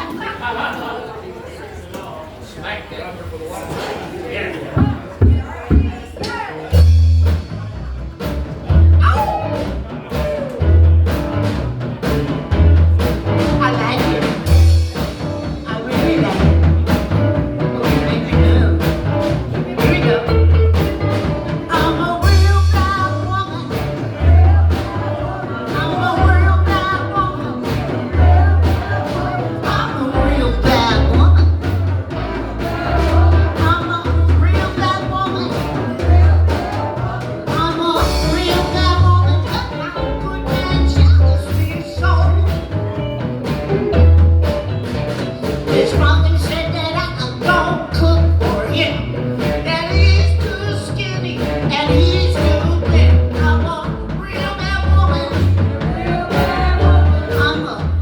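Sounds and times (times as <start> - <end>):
blues band playing: 4.7 - 58.0
pulsing bass notes: 16.2 - 58.0.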